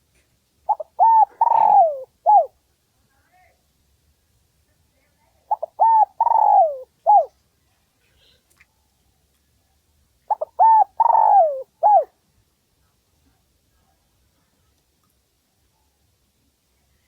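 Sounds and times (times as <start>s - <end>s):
dove cooing: 0.7s - 2.6s, 5.5s - 7.3s, 10.3s - 12.1s.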